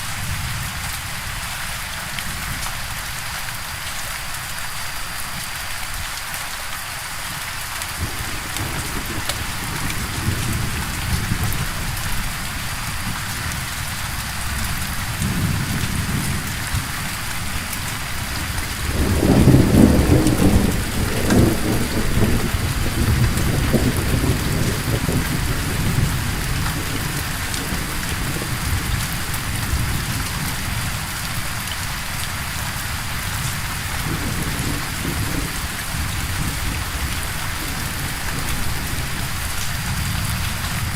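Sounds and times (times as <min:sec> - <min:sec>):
steady rain falling: 0:00.0 - 0:40.9
rolling thunder: 0:08.0 - 0:13.6, 0:14.5 - 0:31.1, 0:33.4 - 0:40.9.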